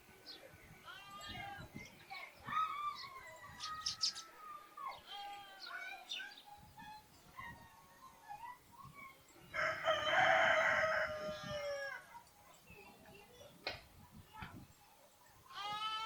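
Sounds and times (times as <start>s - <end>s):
small birds chirping: 0.0s - 9.7s, 10.8s - 15.6s
rooster crowing: 9.5s - 12.0s.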